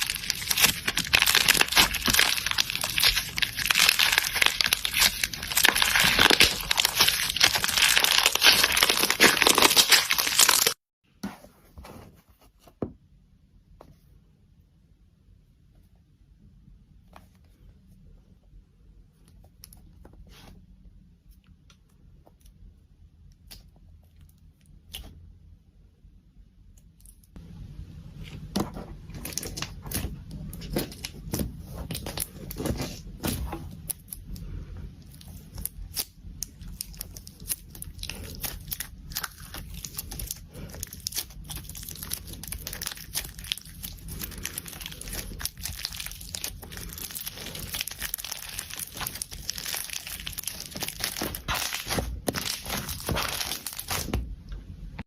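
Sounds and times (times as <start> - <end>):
slime squeezed and stretched: 0.0 - 10.8, 35.1 - 54.2.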